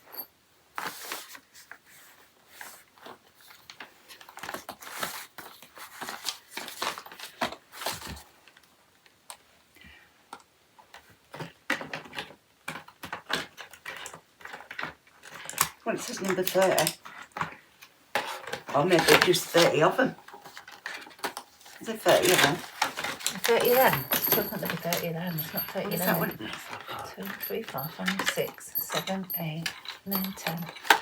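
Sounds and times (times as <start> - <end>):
plastic packets crinkling: 18.5 - 31.0.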